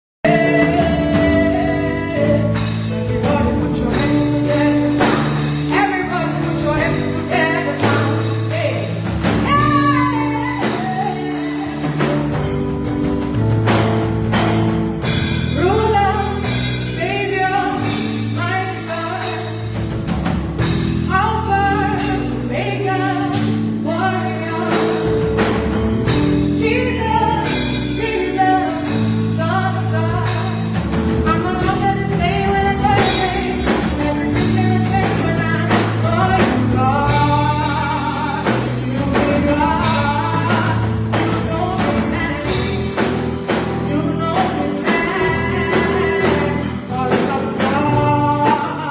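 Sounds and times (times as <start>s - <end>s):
drums: 0.2s - 48.9s
gospel singing: 0.2s - 48.9s
sustained keyboard chords: 0.2s - 48.9s.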